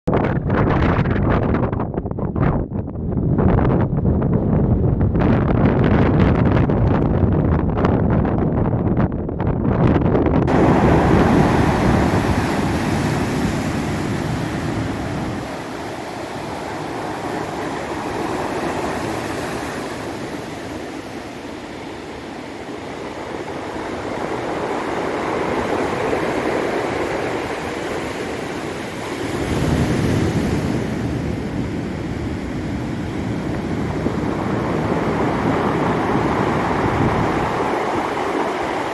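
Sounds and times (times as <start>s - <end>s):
wind buffeting microphone: 0.1s - 38.9s
surf washing against rocks: 10.5s - 38.9s.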